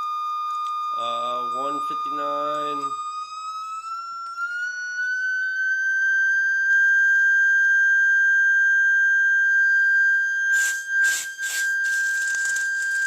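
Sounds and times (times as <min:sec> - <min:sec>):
high-pitched test tone: 0:00.7 - 0:06.4, 0:10.5 - 0:13.0
short hissing bursts: 0:10.5 - 0:13.0.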